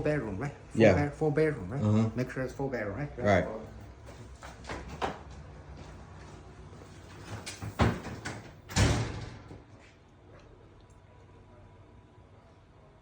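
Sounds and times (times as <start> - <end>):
heavy door thuds: 7.6 - 9.5.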